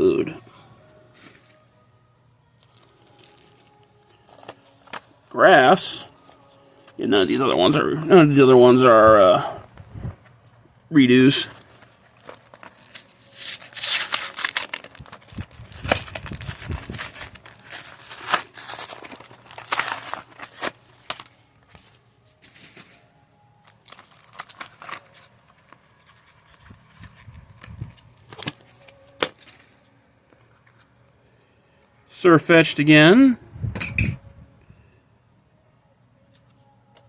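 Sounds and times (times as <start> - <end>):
foil wrapper tearing and crinkling: 2.6 - 3.8, 12.1 - 21.4, 23.6 - 29.6
cards rustling and clicking: 2.6 - 5.2, 11.6 - 23.0, 23.8 - 30.9.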